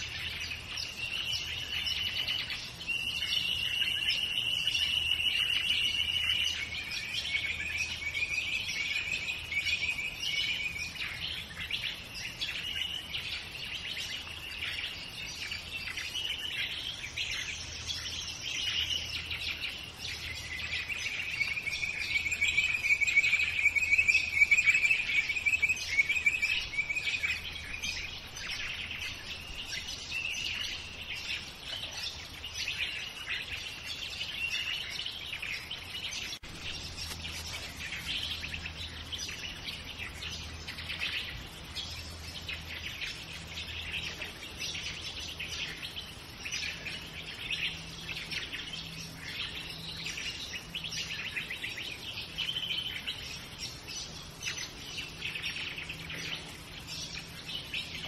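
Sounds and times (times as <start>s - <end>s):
dawn chorus of birds: 0.0s - 58.0s.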